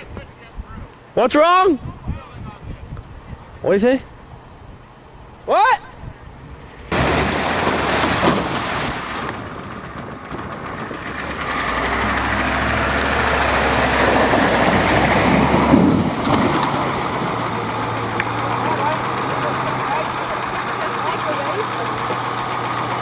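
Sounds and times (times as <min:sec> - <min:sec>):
truck engine running hard: 0:09.3 - 0:23.0.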